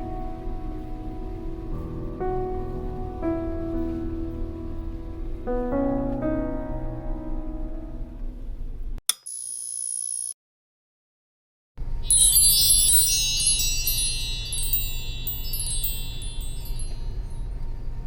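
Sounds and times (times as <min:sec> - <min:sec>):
low hum: 0:00.0 - 0:09.0
high chime-like tinkling: 0:11.9 - 0:17.9.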